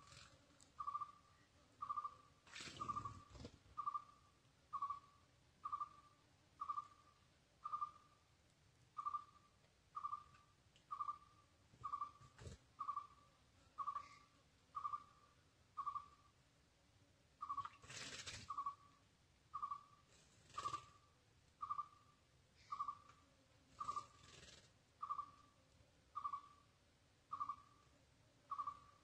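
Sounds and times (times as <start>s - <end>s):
bird hooting: 13.8s - 15.2s, 28.5s - 28.9s.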